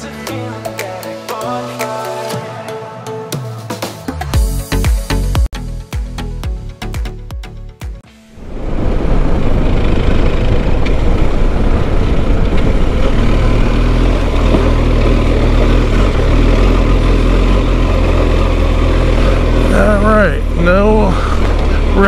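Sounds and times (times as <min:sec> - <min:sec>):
motorcycle engine running: 0:08.9 - 0:22.0.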